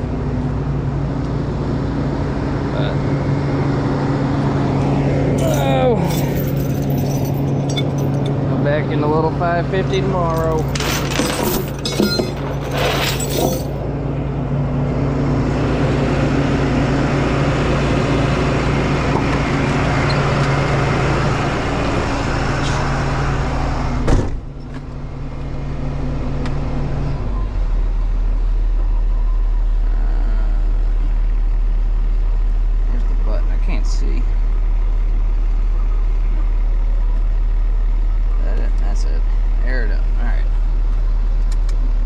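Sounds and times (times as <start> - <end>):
road noise: 0.0 - 42.0
truck diesel engine running: 0.0 - 42.0
clinks: 5.4 - 8.4, 10.2 - 13.8.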